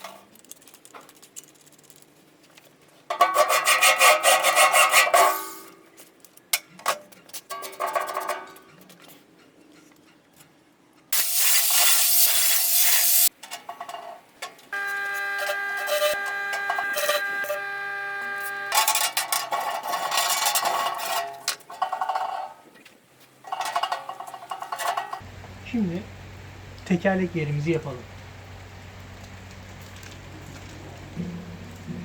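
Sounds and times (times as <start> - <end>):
power tool cutting steel: 11.2 - 13.3, 14.8 - 19.2
motor whine with pitched hum: 14.8 - 18.8.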